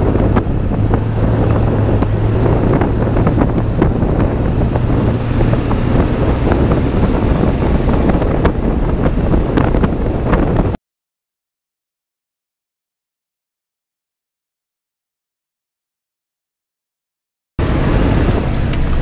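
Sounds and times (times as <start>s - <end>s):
gravel and gear rattling: 0.0s - 8.6s, 17.6s - 19.0s
truck engine running: 0.0s - 10.7s, 17.6s - 19.0s
tyre and road noise: 0.0s - 10.8s, 17.6s - 19.0s.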